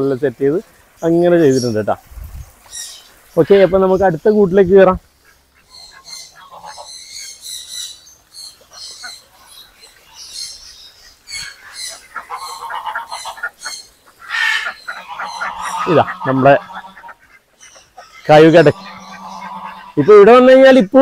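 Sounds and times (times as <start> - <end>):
lower bird calls: 5.2 - 20.3
high bird chirps: 13.2 - 20.2.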